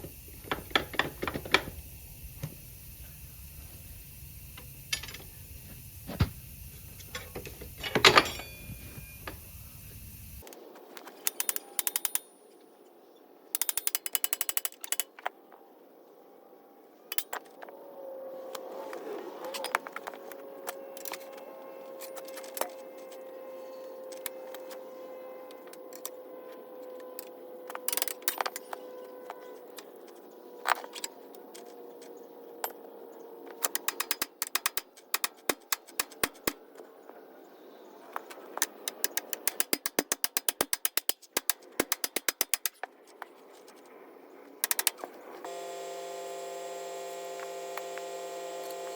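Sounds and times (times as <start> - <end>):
faint steady tone: 0.0 - 10.5
ratchet wrench clicking: 13.6 - 15.1.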